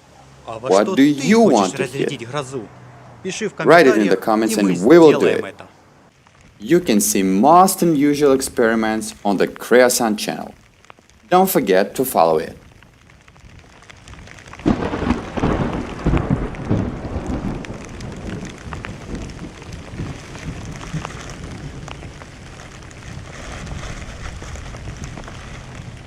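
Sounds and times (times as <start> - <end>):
steady rain: 0.0 - 26.0
thunder rumbling: 11.2 - 26.0.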